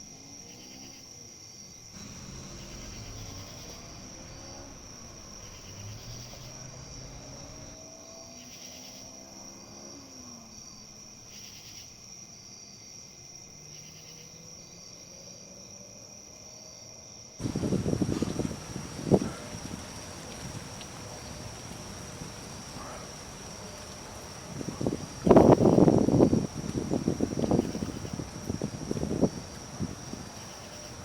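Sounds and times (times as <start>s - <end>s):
high-pitched insect chorus: 0.0s - 31.0s
soft insect trill: 0.0s - 31.0s
faint low rumble: 2.0s - 7.8s.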